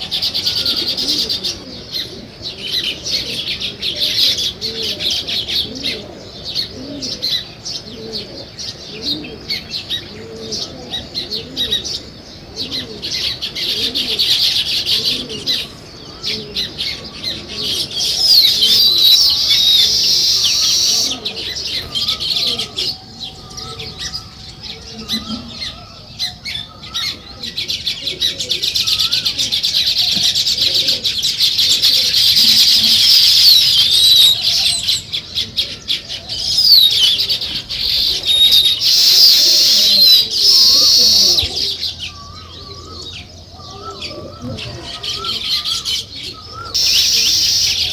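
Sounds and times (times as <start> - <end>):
sparrows chirping: 0.0 - 47.9
low warbled bird notes: 36.2 - 45.4, 46.3 - 47.9.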